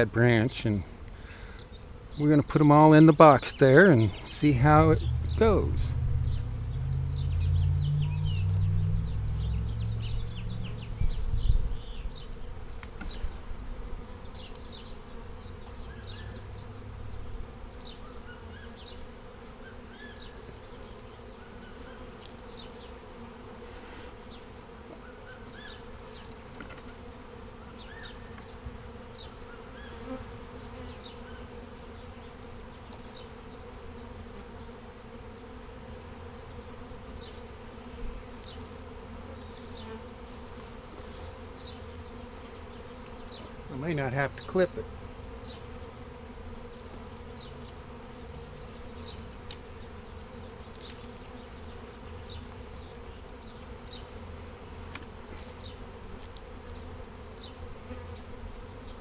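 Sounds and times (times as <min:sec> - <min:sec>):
bee swarm buzzing: 0:00.0 - 0:59.0
heavy low rumbling: 0:04.5 - 0:11.6.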